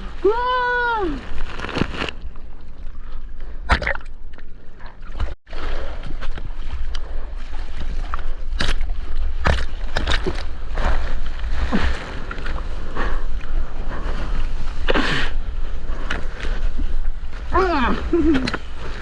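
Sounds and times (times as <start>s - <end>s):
water sloshing and splashing: 0.0s - 19.0s
wind rumble on microphone: 5.5s - 19.0s.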